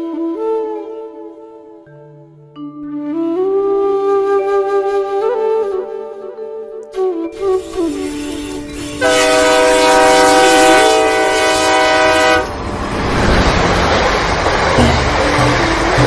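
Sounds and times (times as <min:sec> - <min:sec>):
toy train electronic horn: 0:07.3 - 0:12.6
toy train running on track: 0:07.4 - 0:11.2.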